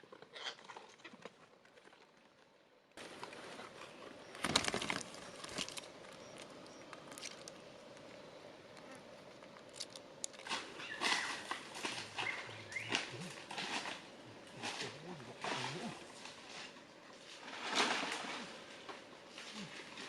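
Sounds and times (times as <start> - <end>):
faint outdoor hum: 0.0 - 20.0
sharp cracks and rustles: 3.0 - 8.1, 9.4 - 20.0.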